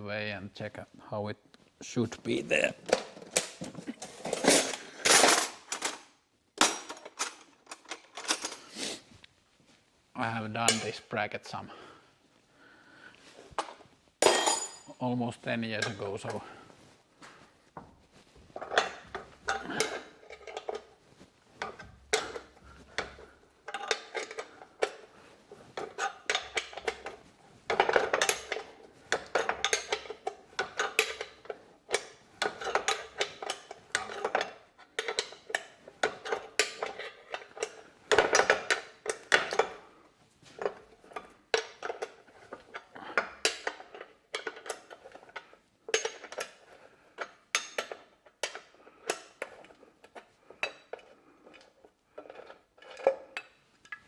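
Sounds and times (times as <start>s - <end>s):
hand tools clinking on metal: 25.8s - 39.7s.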